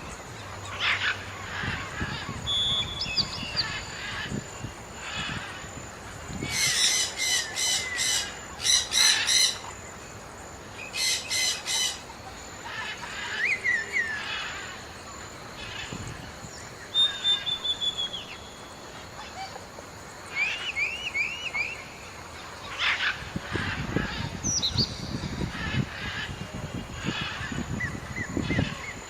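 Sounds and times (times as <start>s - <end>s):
whistled bird chirps: 2.5s - 3.6s, 16.9s - 18.7s, 20.4s - 21.9s.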